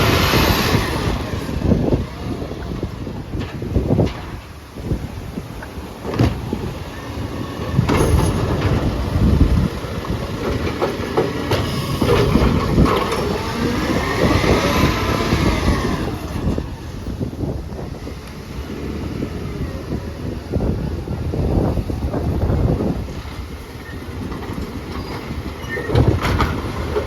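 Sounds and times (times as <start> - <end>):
metallic squeal: 25.0 - 26.1.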